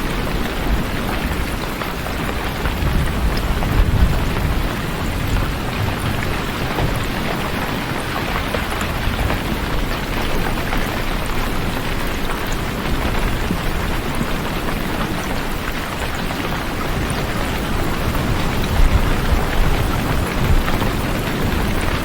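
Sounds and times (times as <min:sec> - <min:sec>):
raindrop ticks: 0:00.0 - 0:22.0.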